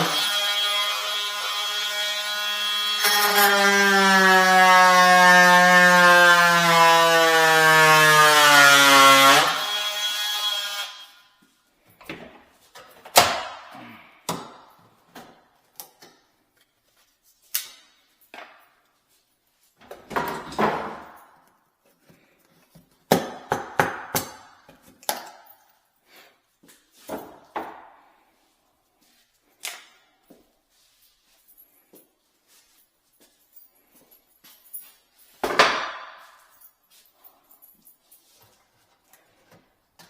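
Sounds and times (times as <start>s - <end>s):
tools knocking and clattering: 19.8s - 25.7s.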